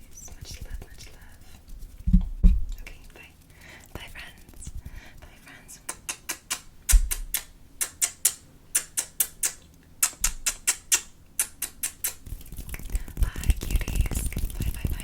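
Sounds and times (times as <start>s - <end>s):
scurrying and scratching on surface: 0.0s - 4.8s, 12.0s - 15.0s.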